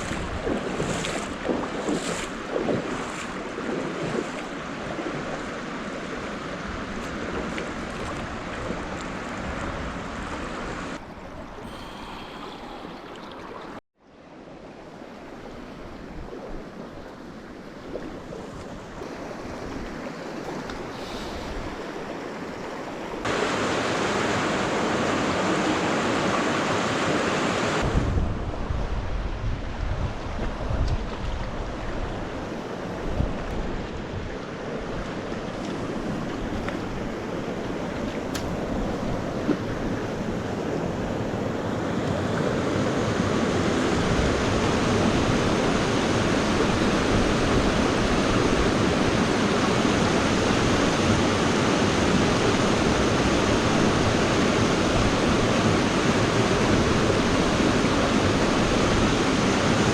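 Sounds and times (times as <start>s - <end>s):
wind on microphone: 0.0s - 11.0s, 27.7s - 59.9s
stream water rushing: 0.0s - 59.9s.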